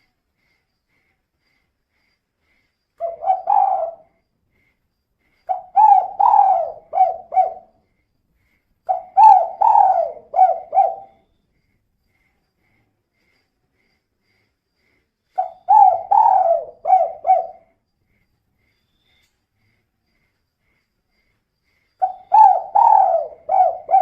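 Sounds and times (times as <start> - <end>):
dove cooing: 3.0 - 4.2, 5.5 - 7.7, 8.9 - 11.2, 15.4 - 17.7, 22.0 - 24.0.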